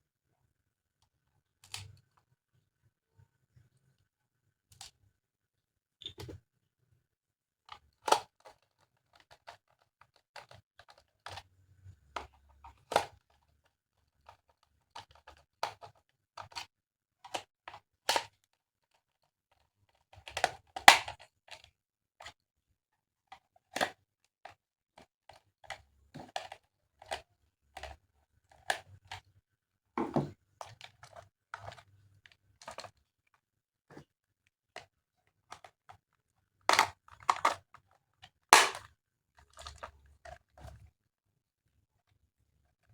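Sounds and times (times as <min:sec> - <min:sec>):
plastic toy parts clicking: 0:36.7 - 0:37.9, 0:38.5 - 0:38.8.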